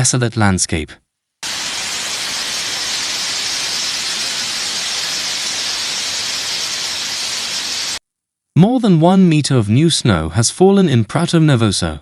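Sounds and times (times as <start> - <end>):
steady hiss: 1.4 - 8.0.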